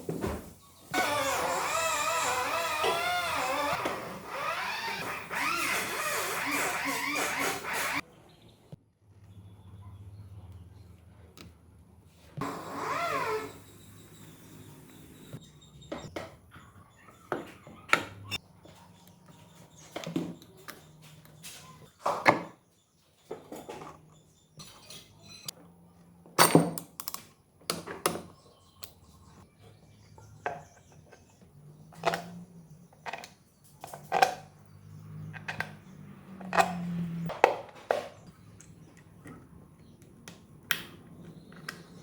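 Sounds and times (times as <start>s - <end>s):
tools and metal parts clinking: 26.4s - 27.3s.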